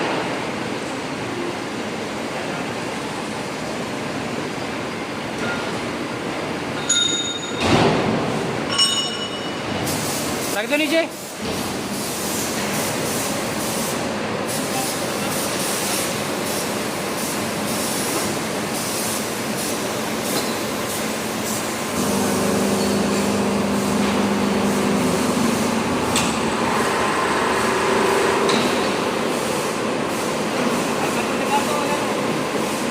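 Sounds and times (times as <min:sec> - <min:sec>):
furnace rushing noise: 0:21.7 - 0:29.4
low hum: 0:21.9 - 0:28.5.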